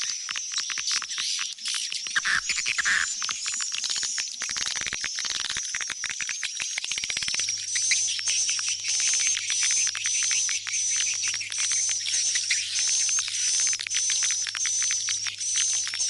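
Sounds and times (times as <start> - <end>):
swiftlet chirping and clicking: 7.4 - 16.0.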